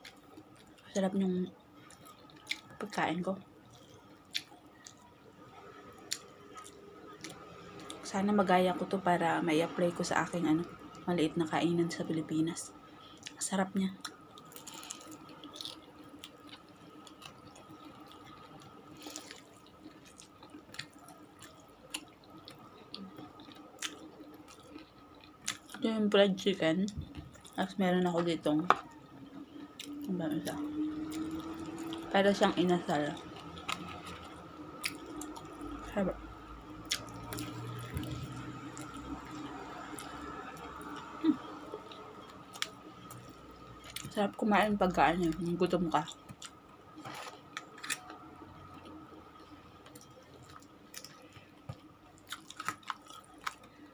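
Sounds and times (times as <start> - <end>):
faint steady hum: 0.0 - 53.9
person chewing food: 1.8 - 2.8, 3.6 - 5.1, 14.0 - 25.8, 27.0 - 27.6, 28.7 - 32.1, 33.0 - 35.9, 36.8 - 44.2, 46.1 - 53.9.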